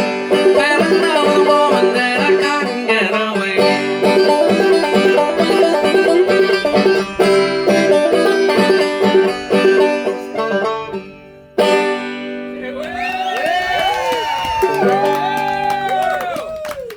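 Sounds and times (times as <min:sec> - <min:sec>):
banjo chord ringing: 0:00.0 - 0:12.6
banjo picked notes: 0:00.0 - 0:12.6.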